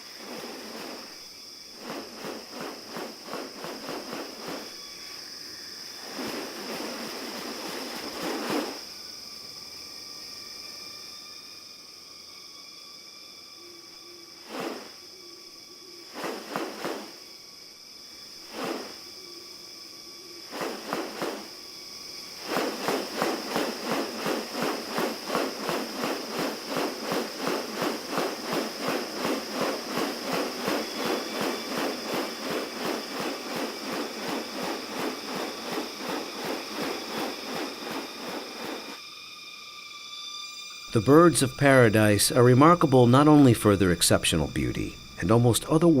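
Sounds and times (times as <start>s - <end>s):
short rustling: 0.0s - 1.2s, 1.8s - 5.1s, 6.0s - 8.8s, 14.4s - 15.0s, 16.1s - 17.2s, 18.5s - 19.0s, 20.5s - 21.6s, 22.2s - 39.0s
high insect drone: 0.0s - 46.0s.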